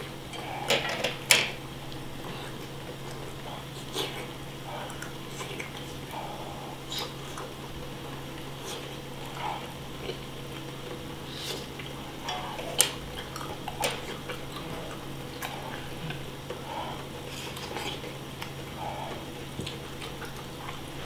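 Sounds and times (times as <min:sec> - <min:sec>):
chewing and mouth noises: 0:00.0 - 0:21.0
steady low hum: 0:00.0 - 0:21.0.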